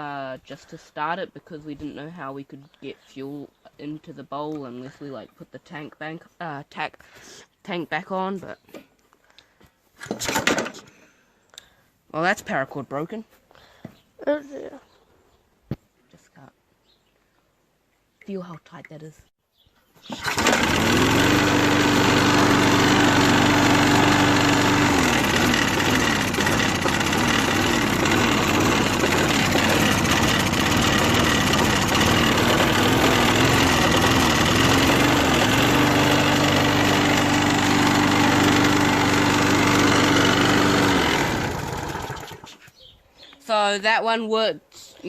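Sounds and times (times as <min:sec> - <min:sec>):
lawnmower engine running and surging: 0:20.1 - 0:42.5.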